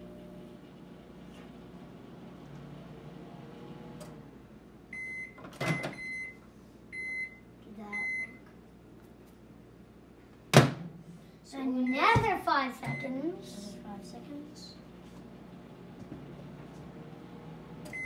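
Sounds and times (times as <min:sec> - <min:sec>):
microwave oven humming: 0:00.0 - 0:18.0
microwave electronic beeps: 0:05.0 - 0:06.4, 0:07.0 - 0:08.4.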